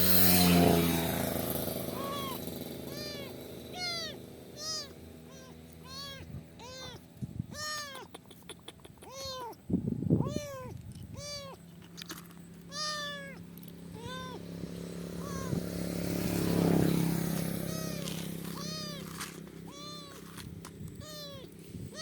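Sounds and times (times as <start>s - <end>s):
kitten meowing: 1.7s - 8.2s, 8.9s - 11.6s, 12.6s - 14.5s, 15.2s - 15.7s, 17.2s - 20.2s, 20.8s - 22.0s.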